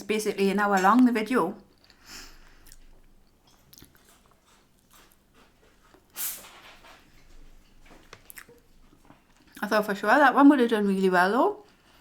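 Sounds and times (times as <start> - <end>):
chewing and biting food: 1.7 - 6.1
wet mouth clicks: 1.8 - 5.1.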